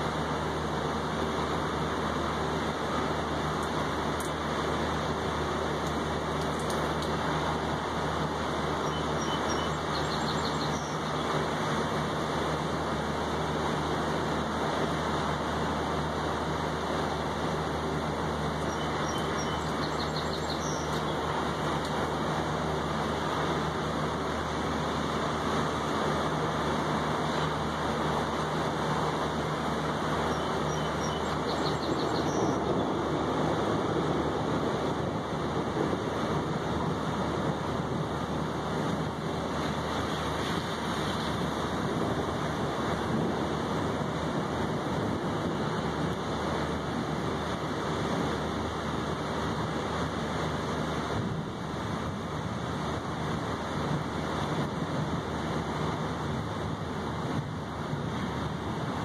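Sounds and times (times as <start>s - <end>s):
ocean surf: 0.0s - 59.0s
rain falling on railing and table: 3.5s - 8.2s.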